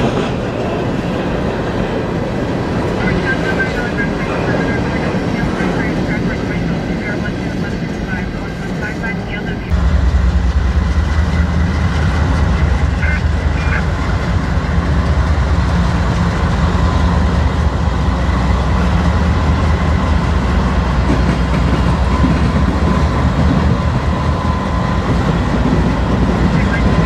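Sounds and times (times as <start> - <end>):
diesel locomotive engines rumbling: 0.0 - 27.0.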